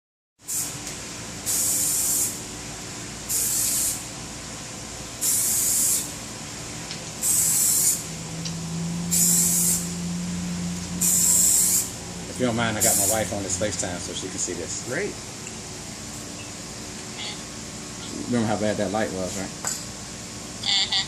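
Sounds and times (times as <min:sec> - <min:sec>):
spray applicator hissing: 0:00.5 - 0:00.8, 0:01.4 - 0:02.4, 0:03.3 - 0:04.1, 0:05.2 - 0:06.2, 0:07.2 - 0:08.1, 0:09.1 - 0:10.0, 0:11.0 - 0:12.0, 0:12.8 - 0:13.4.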